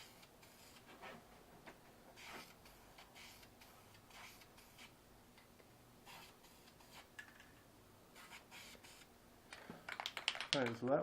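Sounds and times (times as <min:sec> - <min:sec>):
aerosol spray can hissing: 0:02.2 - 0:04.9, 0:06.1 - 0:07.1.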